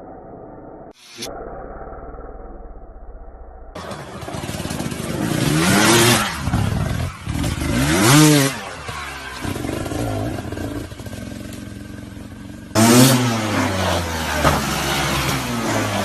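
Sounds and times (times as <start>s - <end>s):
two-stroke motorbike engine revving: 3.8s - 16.0s.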